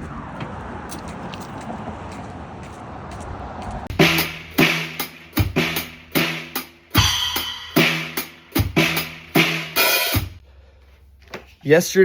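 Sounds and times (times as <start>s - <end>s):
drum hits: 3.9s - 10.4s
cymbal crashes: 4.0s - 10.4s.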